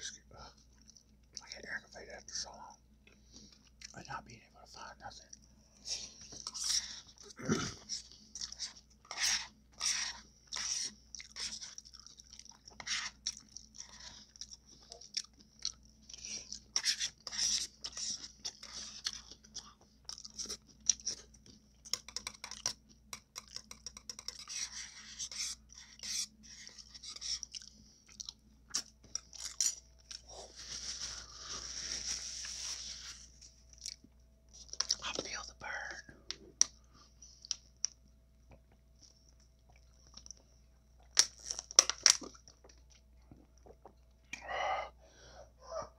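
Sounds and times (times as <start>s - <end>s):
chewing crunchy food: 5.3s - 30.8s, 37.4s - 44.4s.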